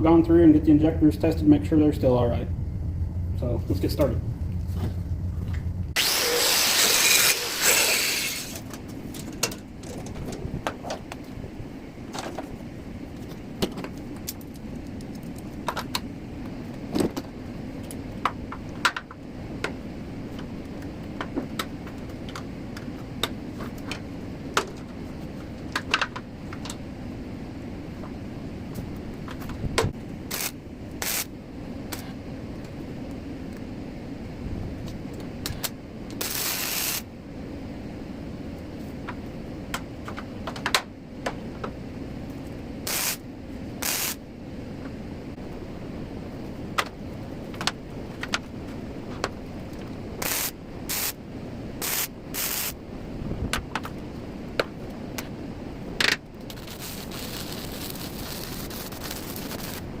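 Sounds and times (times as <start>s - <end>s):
steady low hum: 0.0s - 60.0s
welding hiss and crackle: 5.9s - 8.8s, 30.2s - 32.8s, 34.9s - 37.1s, 42.3s - 44.2s, 49.6s - 51.2s, 51.8s - 52.8s, 56.4s - 60.0s.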